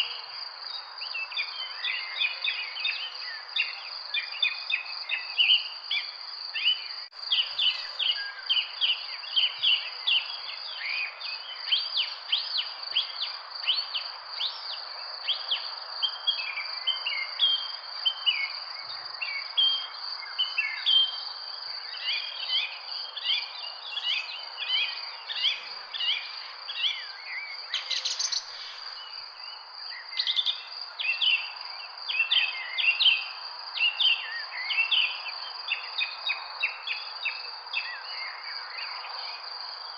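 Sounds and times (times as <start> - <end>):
songbirds chirping: 0.0 - 39.9
background hiss: 4.8 - 19.3, 20.0 - 34.7.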